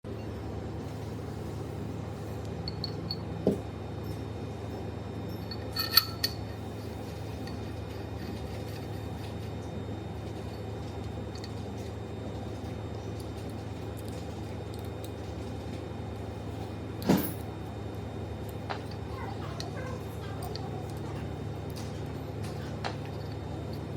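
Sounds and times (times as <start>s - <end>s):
steady low hum: 0.0s - 23.9s
metal tool parts clinking: 5.3s - 6.4s.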